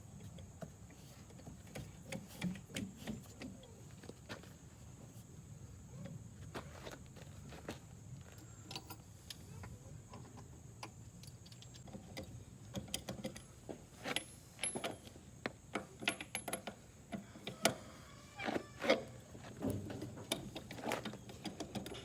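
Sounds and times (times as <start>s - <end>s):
clicks and knocks of handling: 18.4s - 22.0s.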